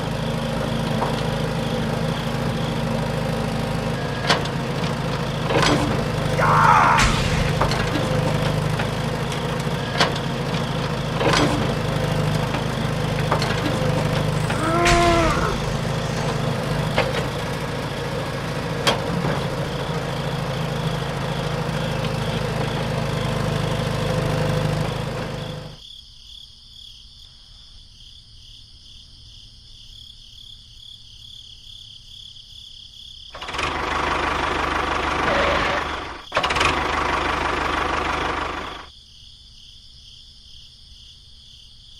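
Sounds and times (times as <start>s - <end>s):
small engine running: 0.0s - 25.8s, 33.4s - 38.9s.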